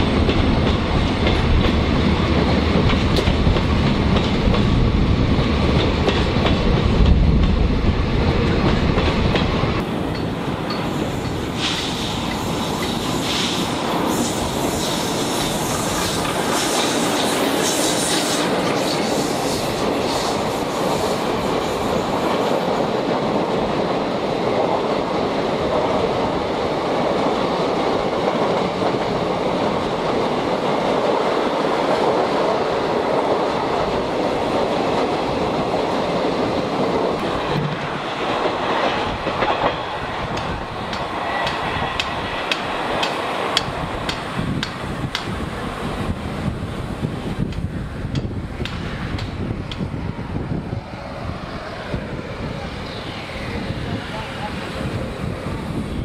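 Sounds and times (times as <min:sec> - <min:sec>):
train wheels clattering: 0:05.6 - 0:07.6, 0:37.2 - 0:45.4.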